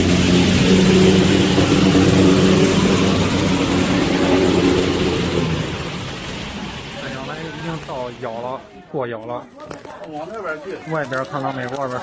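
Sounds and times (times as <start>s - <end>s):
vehicle engine running: 0.0s - 8.6s
loud even hiss: 0.0s - 9.0s.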